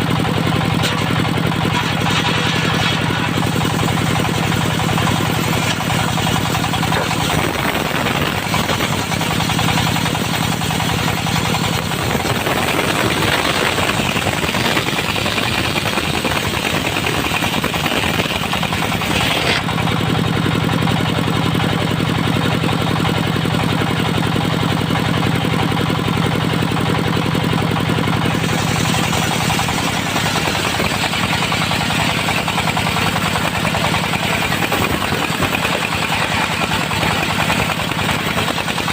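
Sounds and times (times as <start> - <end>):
sawmill engine running: 0.0 - 38.9
circular blade cutting log: 0.6 - 20.0, 28.2 - 38.9.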